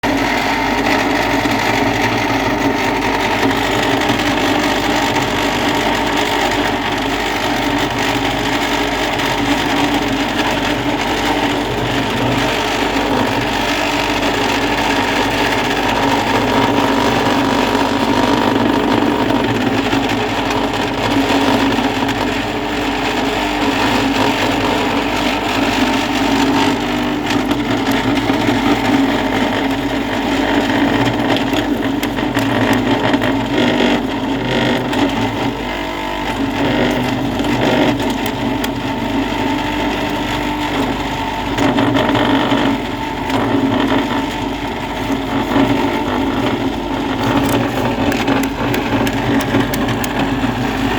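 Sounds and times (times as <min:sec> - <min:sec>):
rattling whir: 0:23.8 - 0:50.9
motor-driven machine humming: 0:24.5 - 0:50.9.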